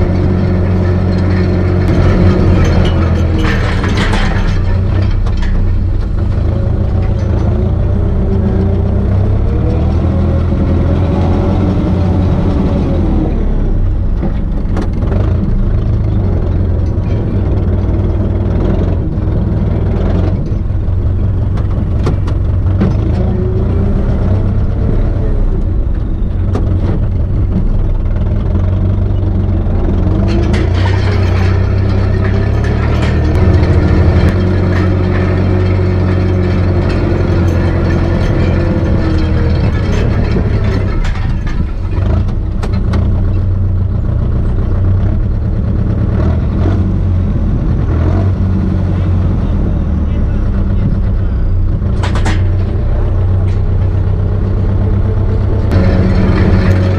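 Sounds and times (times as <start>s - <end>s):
diesel tractor engine running: 0.0s - 56.9s.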